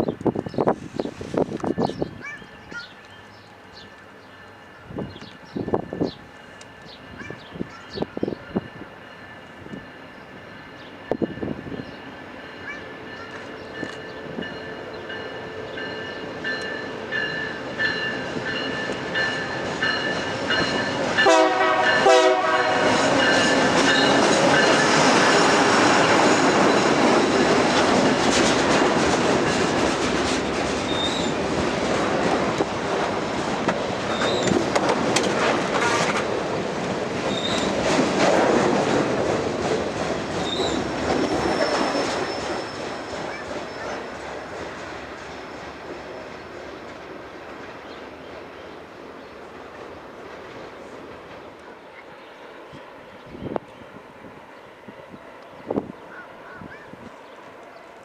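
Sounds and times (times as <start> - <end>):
train wheels clattering on rails: 3.8 - 52.0
train horn tone: 21.2 - 24.3
wheel squeals: 30.9 - 31.4, 34.1 - 34.8, 37.3 - 37.8, 40.4 - 44.1.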